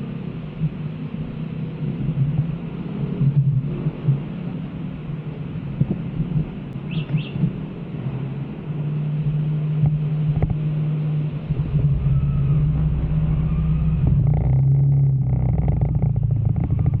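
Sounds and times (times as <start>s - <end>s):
motorcycle engine running: 8.9s - 17.0s.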